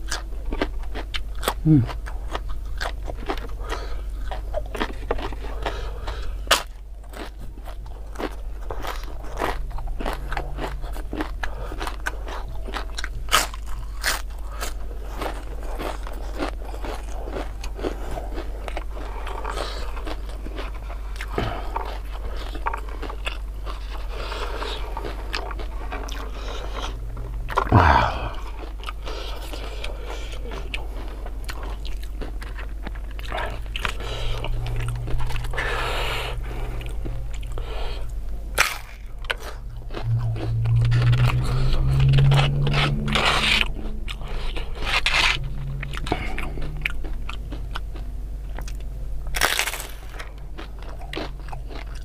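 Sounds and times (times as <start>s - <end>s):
crunching and chewing: 0.0s - 52.0s
vocal sound falling in pitch: 27.6s - 28.5s, 40.0s - 44.1s.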